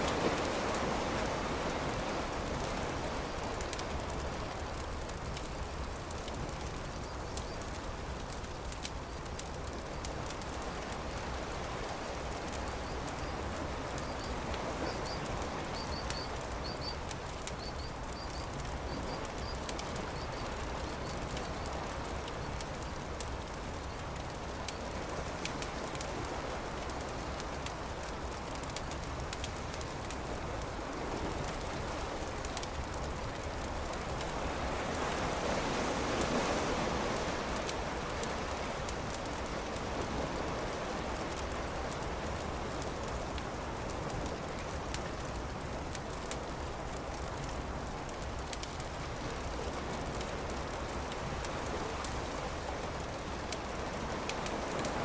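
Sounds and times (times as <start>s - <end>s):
beach surf: 0.0s - 55.0s
campfire crackling: 0.0s - 55.0s.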